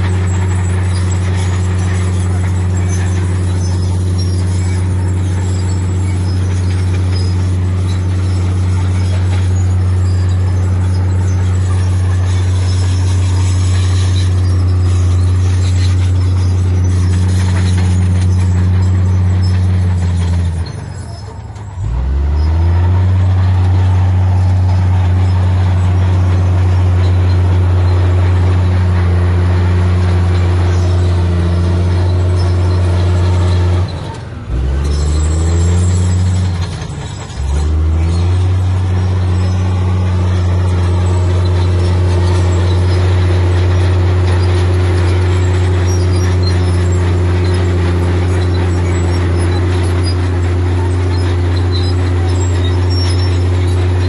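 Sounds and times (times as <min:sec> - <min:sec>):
diesel engine revving hard: 0:00.0 - 0:54.0.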